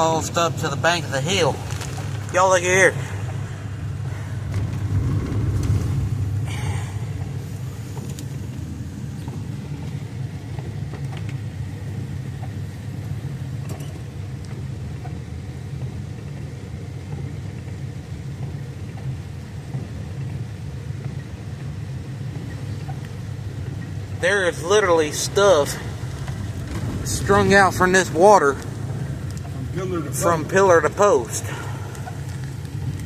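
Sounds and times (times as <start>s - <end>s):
vehicle rumble from on board: 0.0s - 33.0s.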